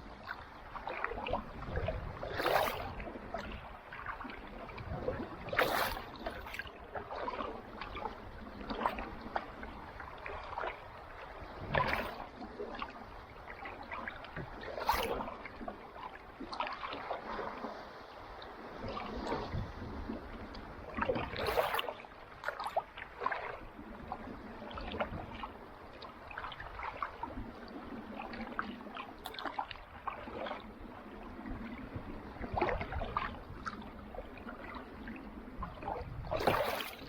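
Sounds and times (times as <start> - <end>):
paddle splashing in water: 0.0 - 37.0
water lapping against hull: 0.0 - 37.0
water trickling off paddle: 20.5 - 30.8, 35.6 - 37.0.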